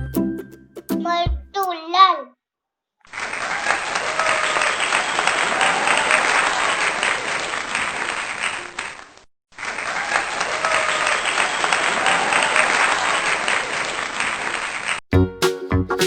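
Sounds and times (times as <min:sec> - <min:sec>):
crowd applauding and cheering: 0:03.1 - 0:09.0, 0:09.6 - 0:15.0.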